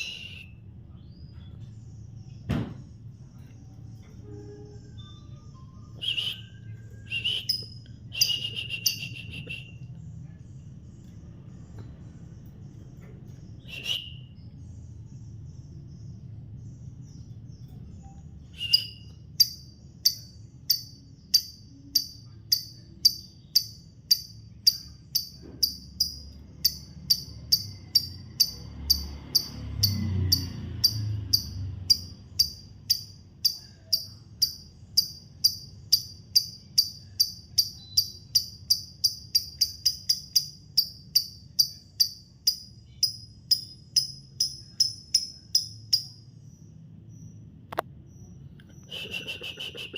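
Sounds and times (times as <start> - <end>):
lovebird high chirps: 0.0 - 1.6, 3.4 - 10.0, 13.3 - 16.0, 16.6 - 47.5, 48.1 - 49.9.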